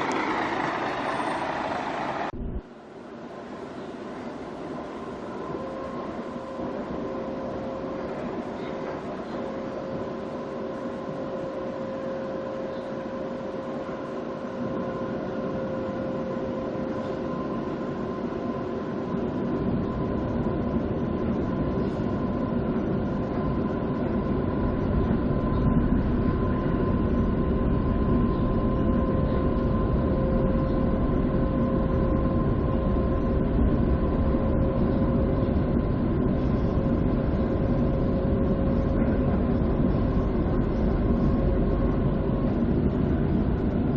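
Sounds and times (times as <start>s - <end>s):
train wheels rumbling on track: 0.0s - 2.6s
high whine: 0.0s - 2.9s.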